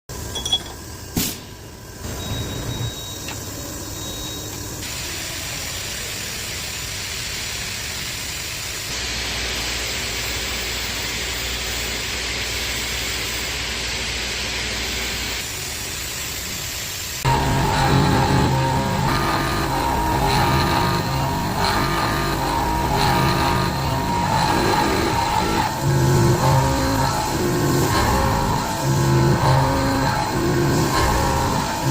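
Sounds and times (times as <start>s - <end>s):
milling machine with high whine: 0.1s - 31.9s
low hum: 17.2s - 31.9s.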